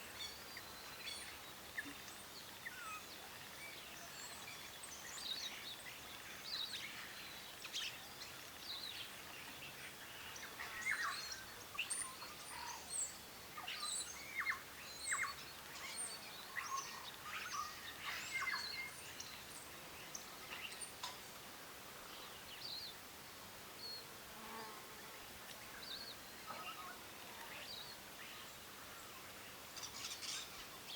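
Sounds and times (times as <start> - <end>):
steady background hiss: 0.0 - 30.9.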